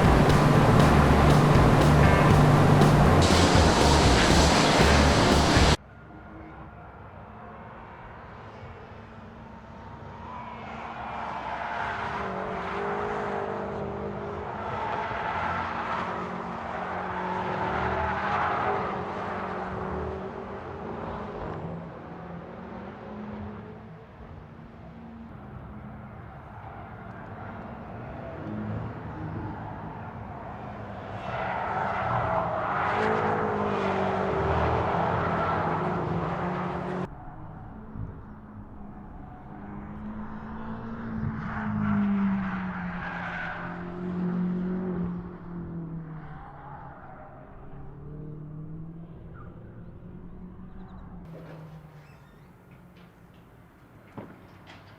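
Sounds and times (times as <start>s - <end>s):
car engine running: 0.0s - 5.8s
road and wind noise: 0.0s - 54.9s.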